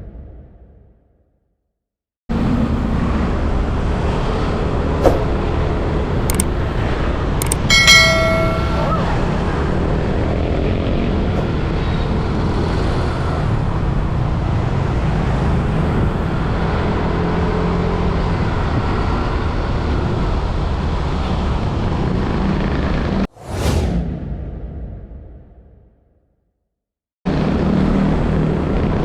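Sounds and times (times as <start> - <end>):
motorbike engine drone: 2.3 - 23.2
road and wind noise: 2.3 - 25.5, 27.3 - 29.0.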